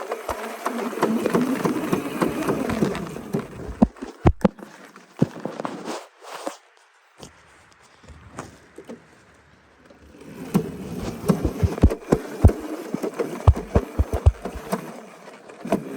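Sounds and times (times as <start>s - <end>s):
knocks and thumps: 11.0s - 12.6s, 13.5s - 14.8s
dirt bike engine buzzing: 11.0s - 12.7s, 13.5s - 14.8s.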